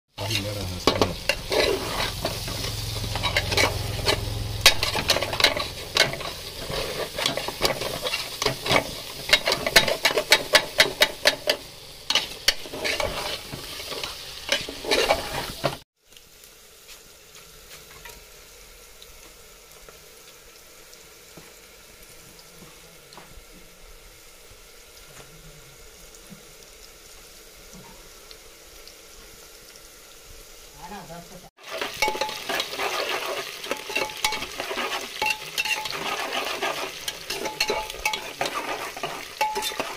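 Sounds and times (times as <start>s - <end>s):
food frying sizzle: 0.1s - 39.9s
spoon scraping pot: 0.3s - 15.7s, 31.6s - 39.9s
spoon clinking against pot: 35.2s - 36.0s, 39.4s - 39.9s.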